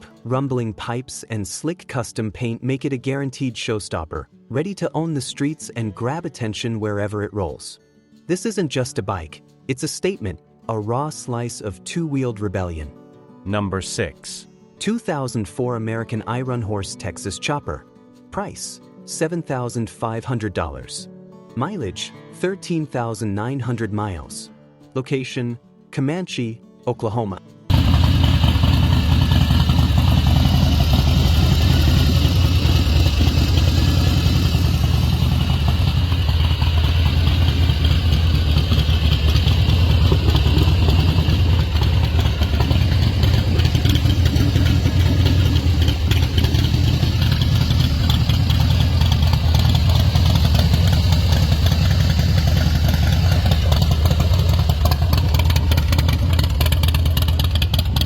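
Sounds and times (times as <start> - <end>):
motorcycle engine idling: 27.7 - 58.0.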